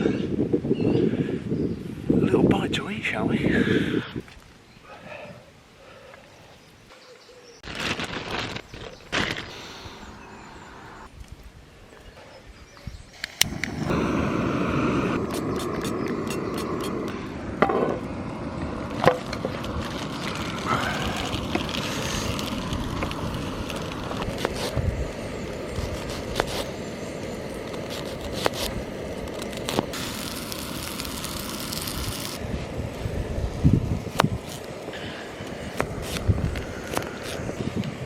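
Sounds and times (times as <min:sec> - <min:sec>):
sausages sizzling in a pan: 0:29.3 - 0:32.4.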